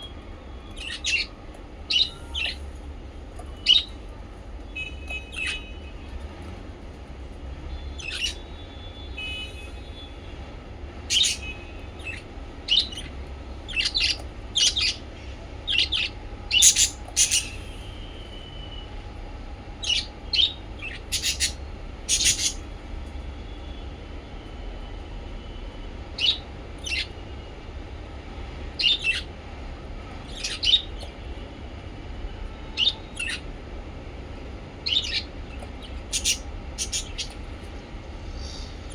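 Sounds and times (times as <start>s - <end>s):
small parrots chirping: 0.7s - 2.8s, 3.5s - 4.0s, 4.6s - 5.9s, 7.7s - 10.1s, 11.1s - 17.9s, 19.8s - 22.7s, 26.2s - 27.1s, 30.2s - 31.1s, 32.7s - 33.5s, 34.8s - 37.8s, 38.4s - 38.9s
steady low hum: 29.4s - 38.9s.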